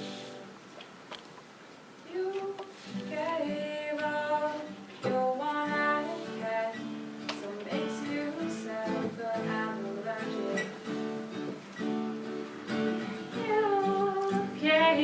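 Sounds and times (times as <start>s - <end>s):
acoustic guitar: 0.0s - 15.0s
women singing held notes: 13.2s - 15.0s.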